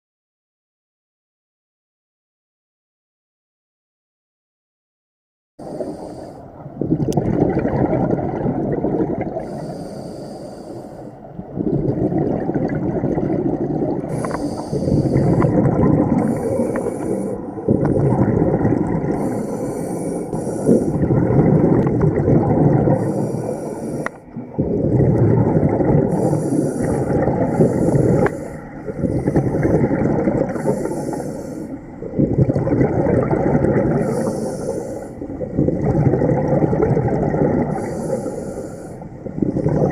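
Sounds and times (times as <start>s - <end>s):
regulator inhale hiss: 5.6s - 6.5s, 9.4s - 11.2s, 14.1s - 15.6s, 16.2s - 17.6s, 19.1s - 21.0s, 23.0s - 24.3s, 26.1s - 29.8s, 30.5s - 32.0s, 34.0s - 35.3s, 37.7s - 39.4s
bubbling exhale rush: 5.6s - 39.9s.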